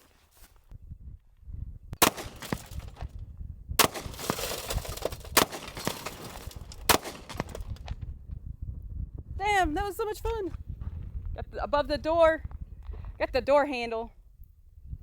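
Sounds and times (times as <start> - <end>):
handgun shots: 2.0 - 3.0, 3.8 - 7.8.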